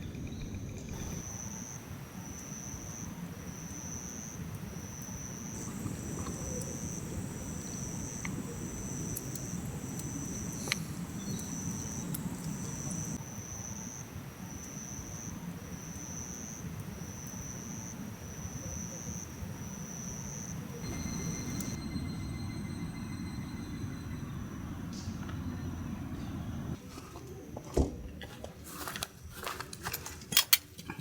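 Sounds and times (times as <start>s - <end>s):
high steady insect tone: 0.0s - 26.8s
insects trilling in pulses: 0.0s - 26.8s
low rumble: 20.8s - 26.8s.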